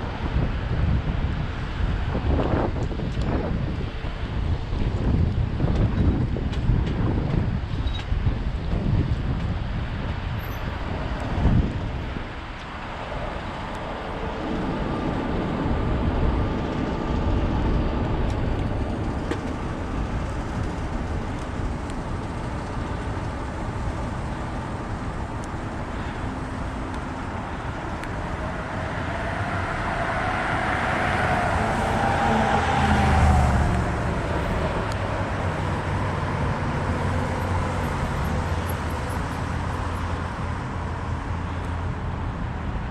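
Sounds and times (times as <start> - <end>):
road traffic rumbling: 0.0 - 42.9
wind on microphone: 0.0 - 42.9
vehicle passing: 13.1 - 41.9.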